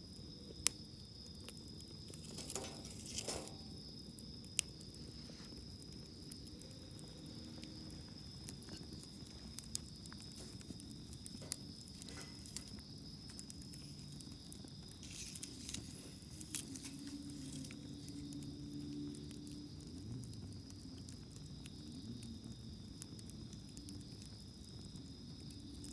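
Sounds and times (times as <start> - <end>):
high insect trill: 0.0 - 19.8
campfire crackling and popping: 0.0 - 25.9
flames rustling: 0.0 - 25.9.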